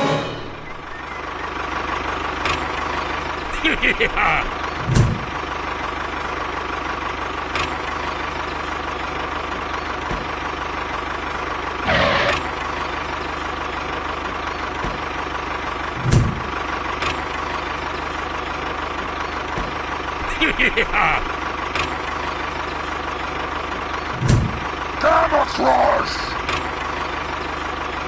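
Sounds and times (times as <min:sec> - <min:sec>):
tractor engine idling: 0:00.0 - 0:28.0
burst of engine noise: 0:00.1 - 0:27.4
low thump: 0:04.8 - 0:05.4, 0:16.0 - 0:16.5.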